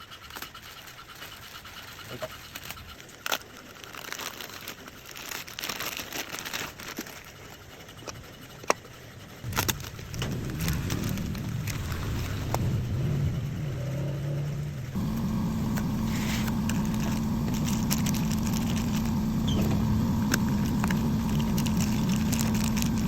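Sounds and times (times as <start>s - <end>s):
scooter engine rumbling: 9.9s - 23.0s
clicks taps and rustling: 15.0s - 23.0s.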